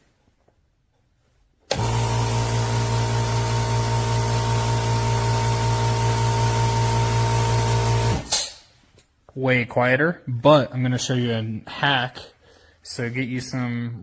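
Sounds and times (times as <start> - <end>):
air compressor running: 1.7 - 8.6.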